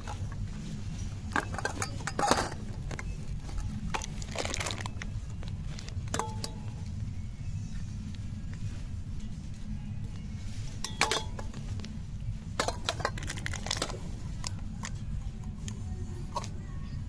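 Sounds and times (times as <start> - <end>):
objects clinking and clattering: 0.0 - 6.9, 10.7 - 11.9, 12.5 - 15.1
low steady hum: 0.0 - 17.0.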